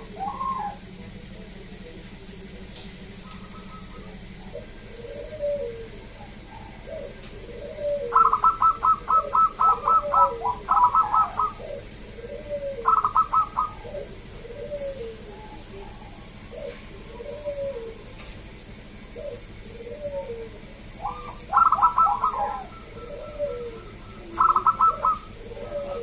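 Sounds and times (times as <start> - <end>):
doves high cooing runs: 0.0 - 26.0
soft low dove coos: 0.0 - 26.0.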